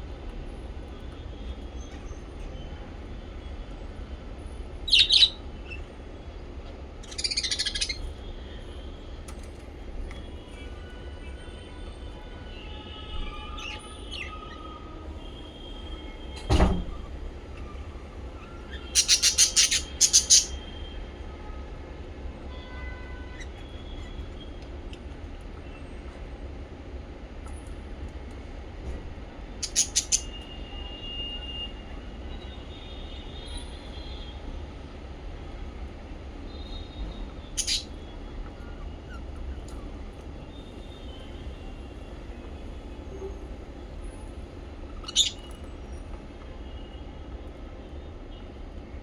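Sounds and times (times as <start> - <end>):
parrots shrill harsh chirps: 4.9 - 5.9, 7.0 - 8.1, 18.4 - 20.6, 29.6 - 30.4, 37.6 - 39.7, 44.9 - 45.6.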